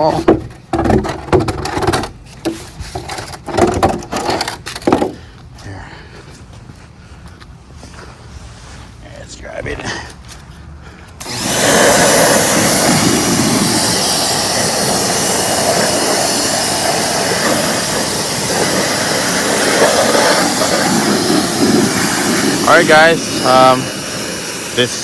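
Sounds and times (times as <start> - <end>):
pressure washer running: 11.2 - 25.0.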